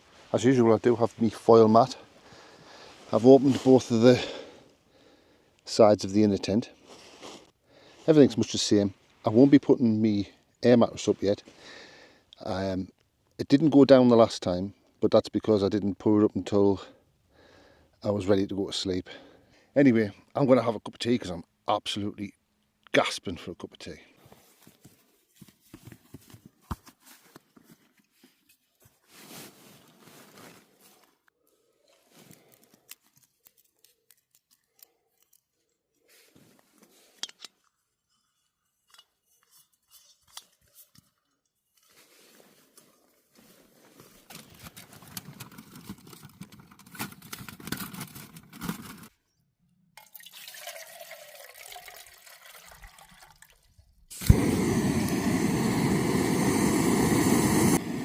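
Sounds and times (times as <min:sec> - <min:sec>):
water poured into pot: 0:50.0 - 0:54.3
gas stove hissing: 0:54.1 - 0:58.0.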